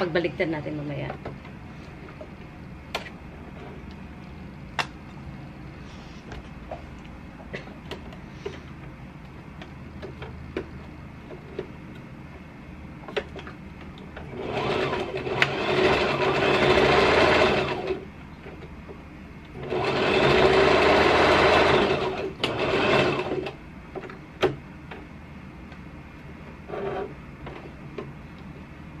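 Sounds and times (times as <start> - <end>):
sewing machine stitching: 14.3 - 18.0, 19.6 - 23.6.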